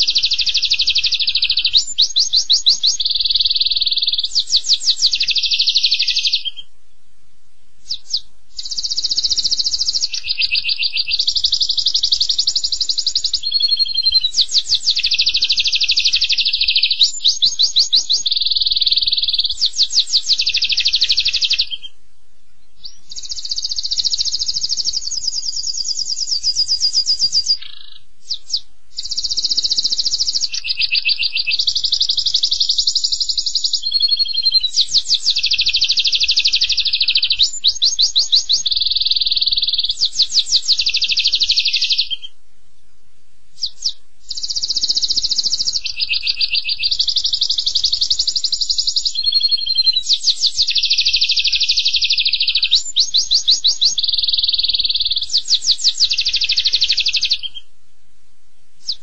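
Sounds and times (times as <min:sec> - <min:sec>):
bird singing high trills: 0:00.0 - 0:07.0, 0:07.7 - 0:22.0, 0:22.6 - 0:42.4, 0:43.6 - 0:57.7, 0:58.8 - 0:59.0.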